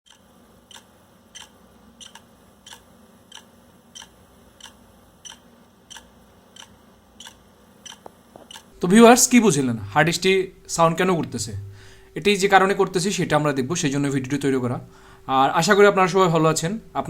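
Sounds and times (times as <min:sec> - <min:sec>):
hard disk drive clicking: 0:00.1 - 0:08.7
faint low hum: 0:00.1 - 0:17.0.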